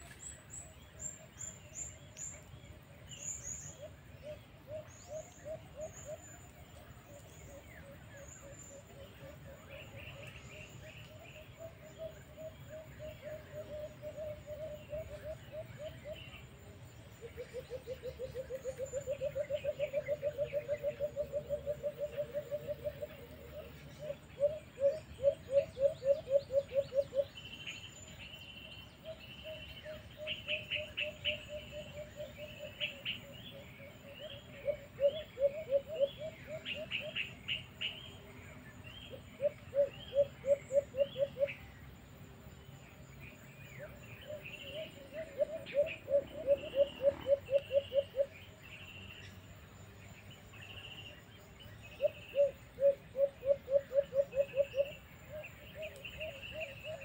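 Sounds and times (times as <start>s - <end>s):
low pulsed bird calls: 28.6s - 38.3s, 43.6s - 49.3s, 51.8s - 57.0s
bird chirps and trills: 43.2s - 49.5s, 50.1s - 57.0s.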